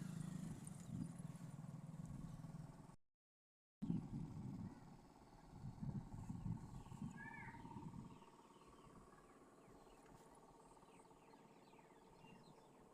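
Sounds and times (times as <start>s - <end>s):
short chirps of birds or insects: 4.8s - 12.9s
arching bird chirp: 6.2s - 12.9s.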